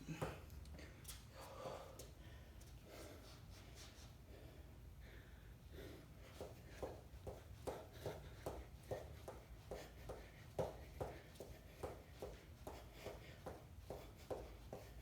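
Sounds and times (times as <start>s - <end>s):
quick rhythmic footfalls: 6.3s - 15.0s.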